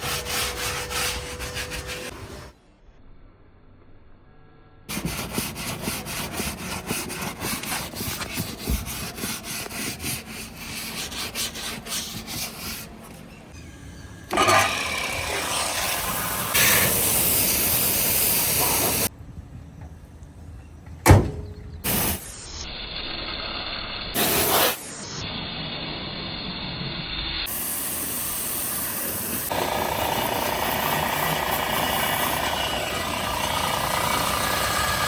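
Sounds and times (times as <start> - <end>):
brush scrubbing upholstery: 0.0 - 2.1, 4.9 - 13.0
loud steady hiss: 15.9 - 19.1, 21.0 - 35.0.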